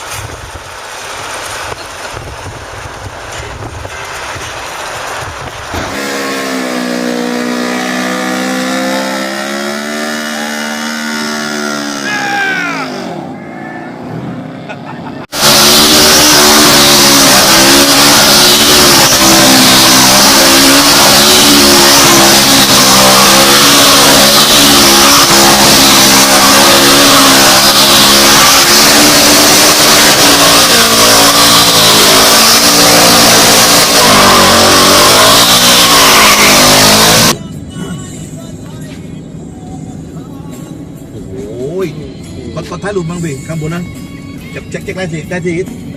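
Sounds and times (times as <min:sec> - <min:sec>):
vehicle engine at high revs: 0:00.0 - 0:13.4, 0:14.0 - 0:37.4.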